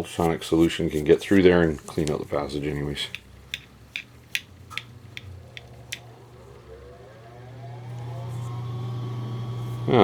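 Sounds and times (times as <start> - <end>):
steady low hum: 0.0 - 10.0
faint rising whine: 4.5 - 10.0.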